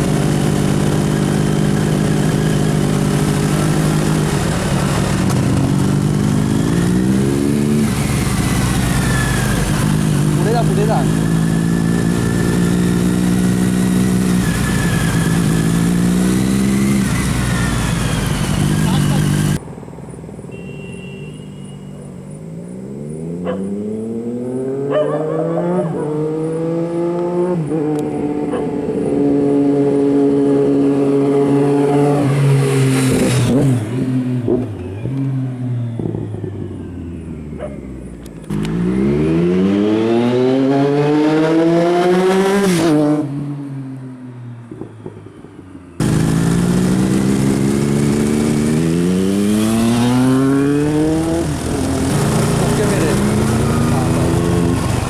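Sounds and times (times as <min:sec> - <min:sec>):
motorcycle engine accelerating: 0:00.0 - 0:19.6, 0:22.0 - 0:43.6, 0:46.0 - 0:55.0.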